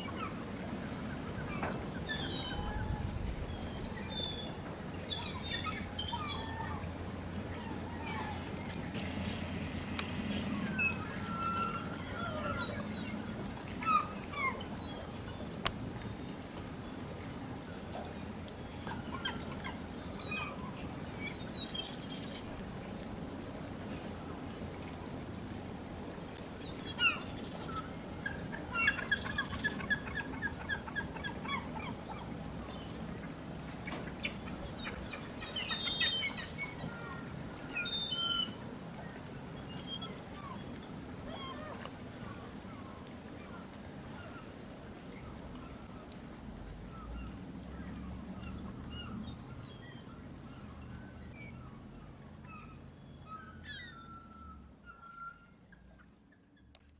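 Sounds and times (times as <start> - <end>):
gulls calling: 0.0 - 15.6, 26.7 - 44.6
low background noise: 0.0 - 56.9.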